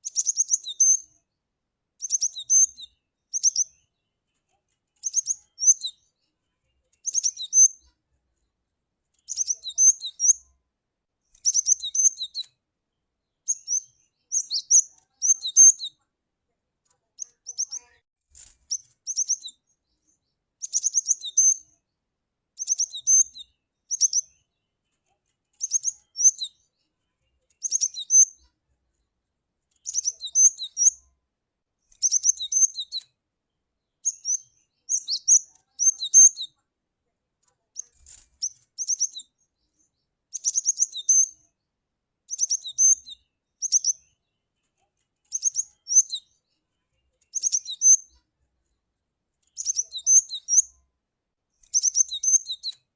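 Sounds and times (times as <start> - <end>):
bird calling high-pitched phrases: 0.0 - 1.2, 2.0 - 4.0, 5.0 - 7.9, 9.2 - 10.4, 13.5 - 16.1, 16.9 - 18.0, 18.7 - 21.8, 22.6 - 24.5, 25.6 - 28.5, 29.8 - 31.0, 34.0 - 36.7, 37.7 - 41.5, 42.3 - 44.2, 45.3 - 46.4, 47.1 - 48.2, 49.6 - 50.7, 51.7 - 52.8.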